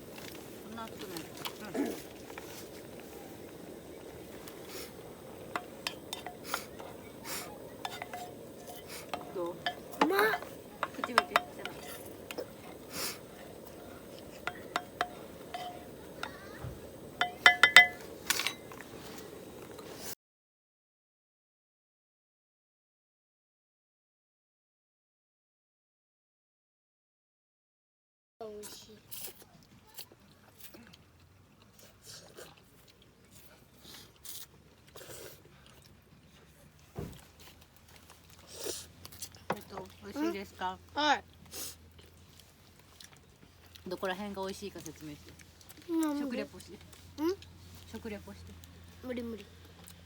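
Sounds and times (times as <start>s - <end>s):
cutlery clinking against dishes: 5.6s - 6.8s, 7.8s - 12.5s, 14.2s - 16.4s, 17.2s - 18.8s
person chewing food: 29.1s - 39.7s, 41.2s - 50.0s.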